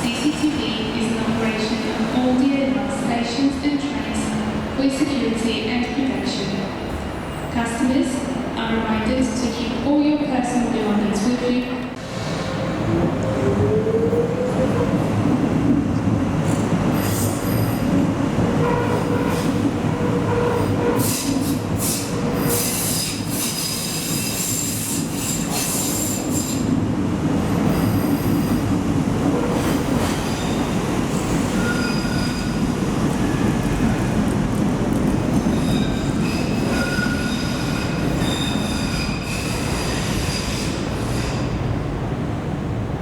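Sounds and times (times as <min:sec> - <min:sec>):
train rumble: 0:10.5 - 0:43.0.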